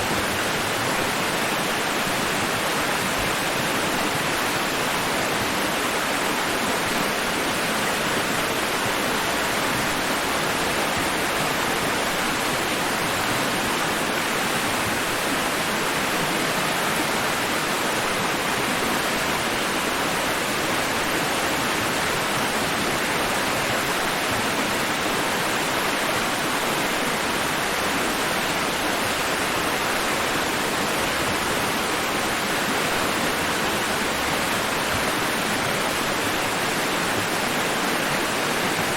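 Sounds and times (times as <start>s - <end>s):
steady white noise hiss: 0.0s - 38.9s.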